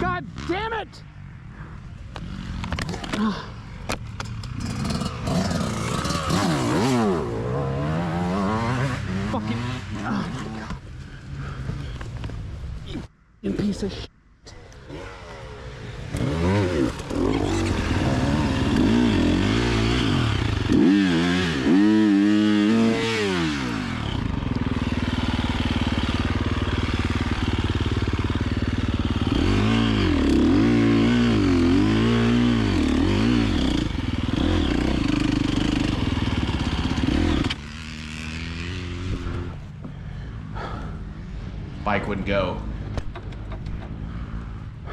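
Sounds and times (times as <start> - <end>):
dirt bike engine revving: 4.2 - 11.7, 14.7 - 39.8.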